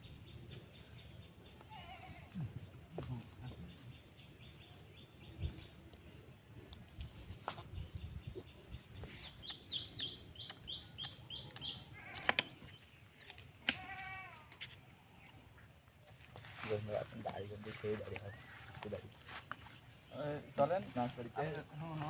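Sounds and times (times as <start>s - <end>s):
bird chirping: 0.0s - 22.0s
sharp clicks: 9.4s - 12.6s.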